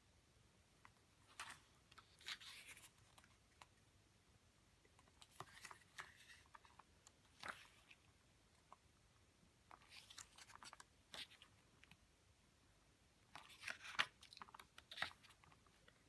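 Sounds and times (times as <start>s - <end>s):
paper pages rustling: 1.2s - 3.7s, 5.0s - 8.1s, 9.7s - 12.0s, 13.3s - 15.9s.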